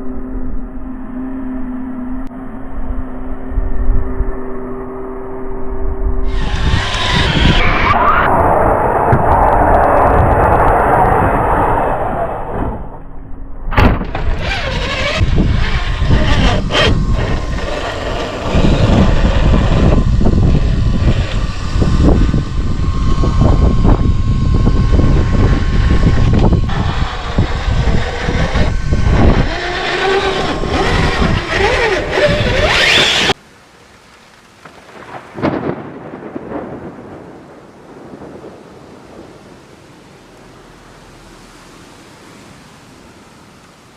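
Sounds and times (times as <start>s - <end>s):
electric motor whine: 0.0s - 11.1s, 14.0s - 33.4s.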